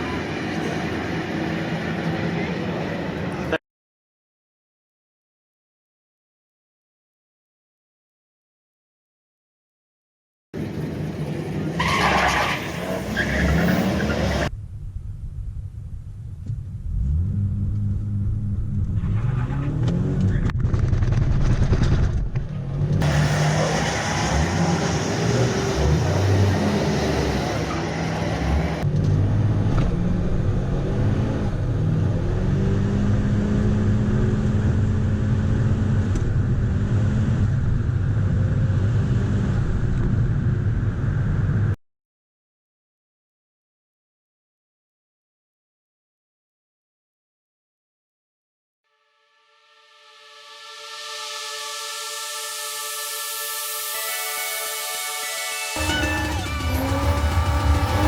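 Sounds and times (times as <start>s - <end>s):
car engine revving: 16.7s - 21.7s, 22.6s - 39.8s, 55.8s - 58.0s.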